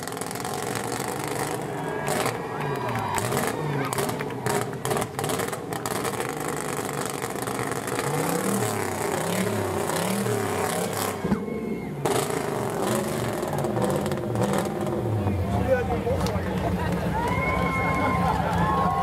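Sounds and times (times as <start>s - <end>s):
car engine revving: 0.0s - 18.4s
exhaust pops: 3.1s - 11.4s.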